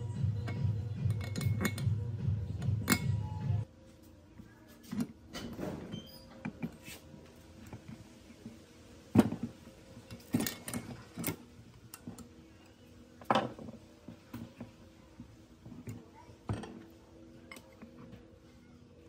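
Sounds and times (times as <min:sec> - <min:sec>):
metal parts knocking and clinking: 0:00.4 - 0:03.4, 0:10.1 - 0:12.3.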